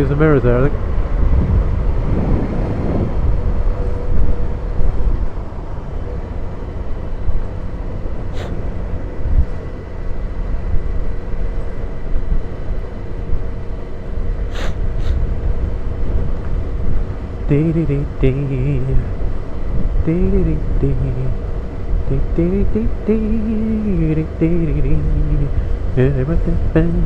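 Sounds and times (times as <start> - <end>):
wind noise: 0.0 - 9.7, 14.3 - 17.6, 18.8 - 22.4
motorcycle engine rumble: 0.0 - 27.0.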